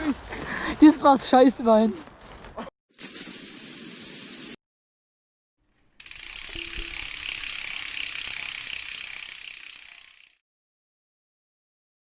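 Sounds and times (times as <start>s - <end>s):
bike freewheel hub buzzing: 5.7s - 10.4s.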